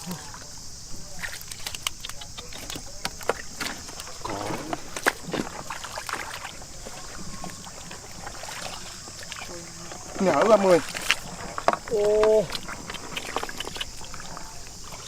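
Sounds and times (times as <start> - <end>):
steady high hiss: 0.0 - 15.0
water splashing and sloshing: 0.0 - 15.0.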